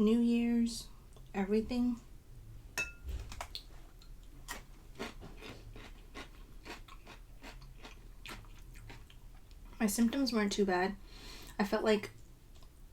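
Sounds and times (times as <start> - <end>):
person chewing food: 3.3 - 9.7.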